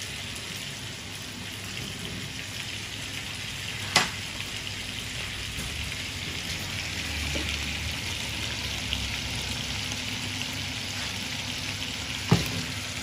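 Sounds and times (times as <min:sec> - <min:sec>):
fish frying in hot oil: 0:00.0 - 0:13.0.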